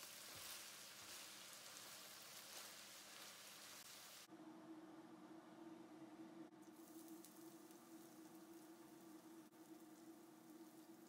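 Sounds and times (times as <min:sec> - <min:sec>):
meat sizzling in a frying pan: 0:00.0 - 0:04.3
low steady hum: 0:00.0 - 0:11.0.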